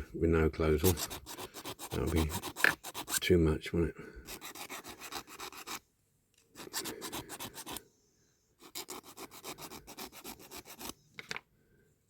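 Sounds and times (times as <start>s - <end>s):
hand file rasping on metal: 0.8s - 3.3s, 4.3s - 5.8s, 6.6s - 7.8s, 8.6s - 11.0s.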